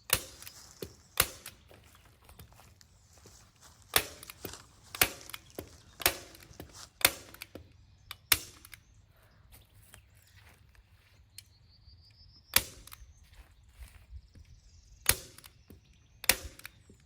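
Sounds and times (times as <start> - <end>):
staple gun firing: 0.1 - 1.6, 3.9 - 8.9, 12.6 - 13.0, 15.0 - 15.6, 16.2 - 16.8.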